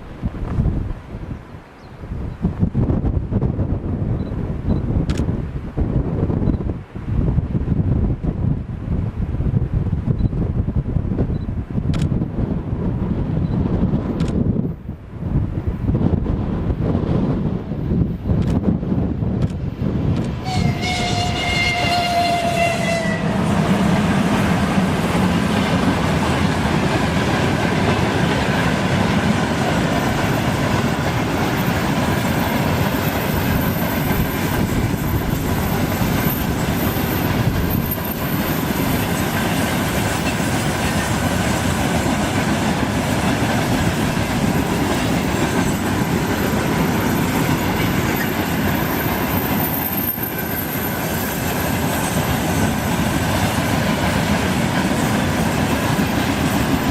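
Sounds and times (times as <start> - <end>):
freight train wheels clattering: 23.3 - 56.9
high wheel squeal: 45.6 - 52.9.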